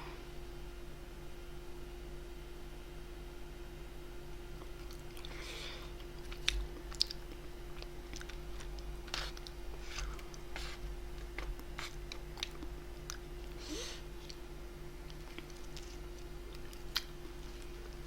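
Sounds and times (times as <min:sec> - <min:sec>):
faint electrical hum: 0:00.0 - 0:18.0
close chewing and mouth sounds: 0:04.6 - 0:18.0.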